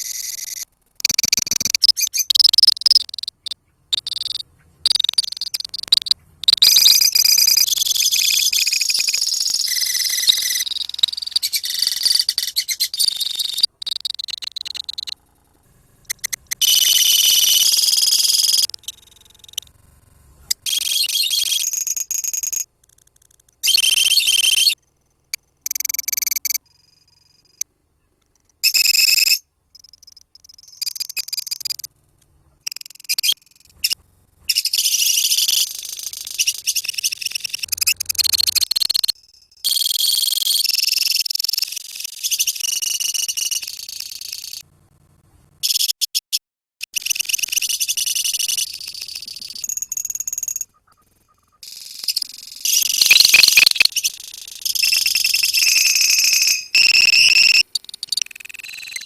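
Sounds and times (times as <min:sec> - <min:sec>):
lovebirds chattering: 0:00.0 - 0:15.2, 0:16.0 - 0:19.6, 0:50.7 - 0:59.0.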